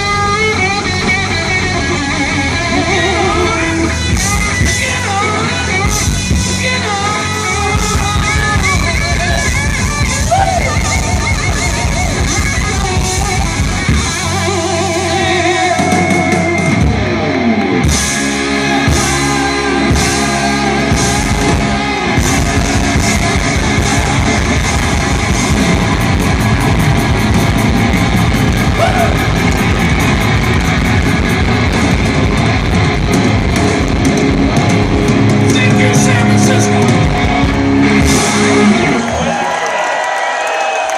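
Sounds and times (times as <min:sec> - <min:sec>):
drum kit: 0:00.0 - 0:39.5
electric guitar: 0:00.0 - 0:40.9
hard drum hits: 0:21.0 - 0:35.6.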